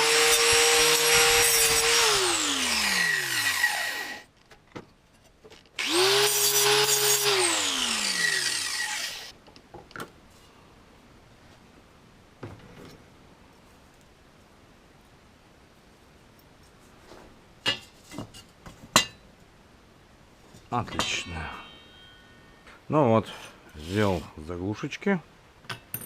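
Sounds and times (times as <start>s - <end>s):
grinder winding down whine: 0.0s - 4.2s, 5.8s - 9.3s
angle grinder grinding steel: 0.0s - 4.3s, 5.8s - 9.3s.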